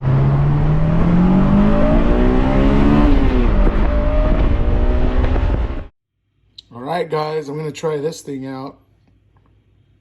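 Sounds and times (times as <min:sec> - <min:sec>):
car engine accelerating: 0:00.0 - 0:05.9.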